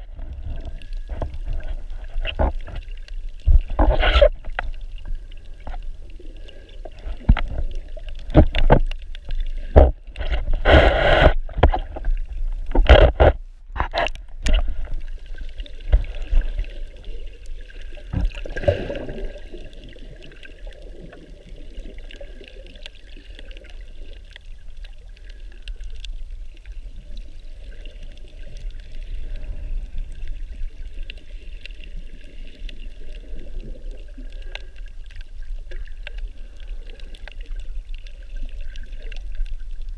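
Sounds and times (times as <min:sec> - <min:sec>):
muffled water splashing: 0:00.0 - 0:39.9
underwater wash: 0:00.0 - 0:39.9.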